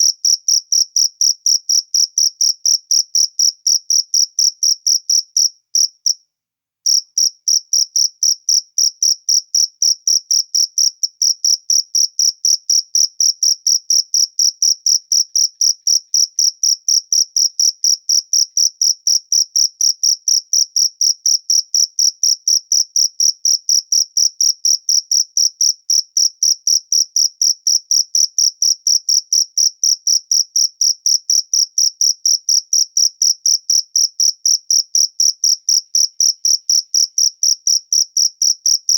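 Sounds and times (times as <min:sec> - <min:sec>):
cricket chirping: 0:00.0 - 0:06.2, 0:06.9 - 0:38.9.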